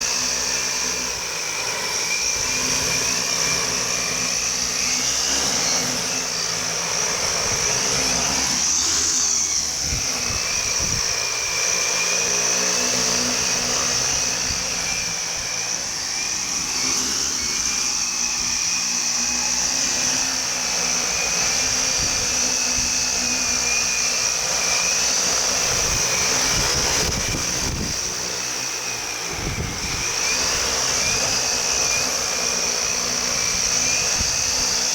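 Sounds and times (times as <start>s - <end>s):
drone propellers whining: 0.0s - 34.9s
wind buffeting microphone: 9.4s - 11.5s, 25.4s - 28.3s, 29.3s - 32.0s.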